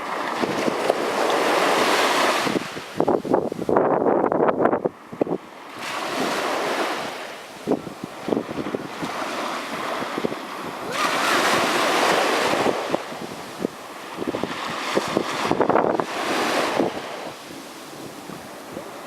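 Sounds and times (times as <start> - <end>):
sea waves breaking: 0.0 - 19.0
wind buffeting microphone: 0.0 - 19.0.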